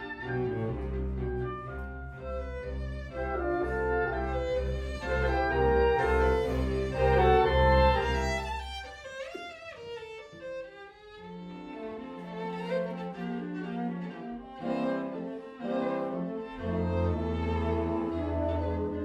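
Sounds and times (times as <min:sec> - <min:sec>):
violin line sliding in pitch: 0:00.0 - 0:10.4
chamber orchestra strings playing: 0:00.0 - 0:19.0.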